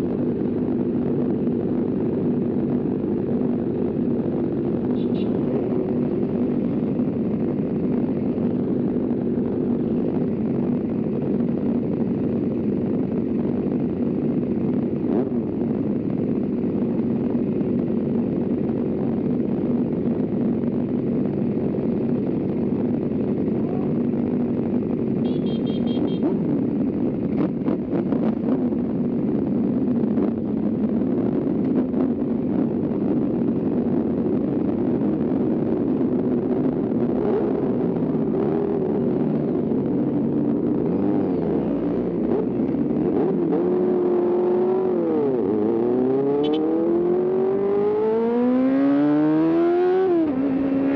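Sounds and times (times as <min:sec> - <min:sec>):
motorcycle engine running steadily: 0:00.0 - 0:48.1.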